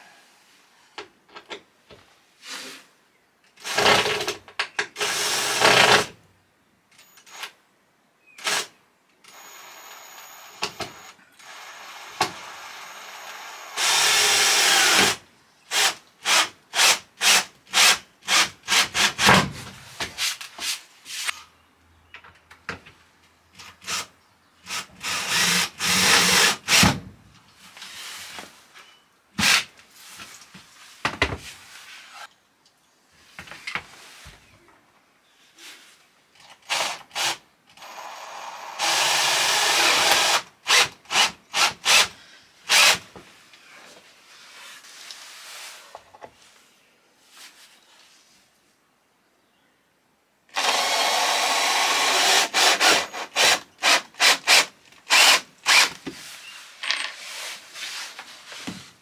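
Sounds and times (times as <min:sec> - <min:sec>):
cordless drill driving screws: 0:05.0 - 0:06.1, 0:09.3 - 0:19.2, 0:24.7 - 0:26.9, 0:36.6 - 0:42.1, 0:42.7 - 0:43.0, 0:50.5 - 0:56.0.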